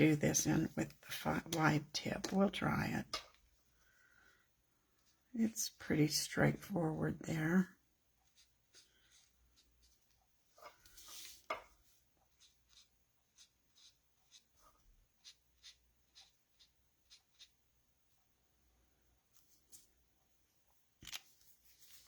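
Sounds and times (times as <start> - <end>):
marker scratching on card: 8.2 - 10.2, 12.2 - 17.6.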